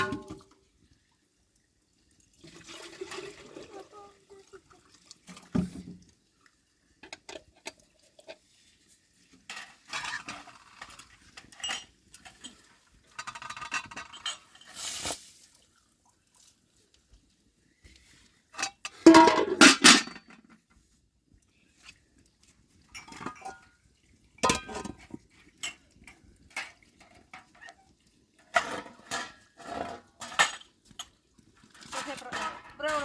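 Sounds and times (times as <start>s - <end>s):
dishes and pots clattering: 0.0s - 0.5s, 9.5s - 14.8s, 18.6s - 20.5s, 22.9s - 23.8s, 24.4s - 27.8s, 28.4s - 31.2s, 31.8s - 33.0s.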